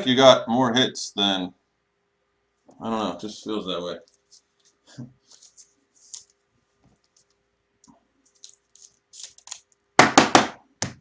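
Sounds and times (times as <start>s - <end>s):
foil wrapper crackling: 8.2s - 9.8s.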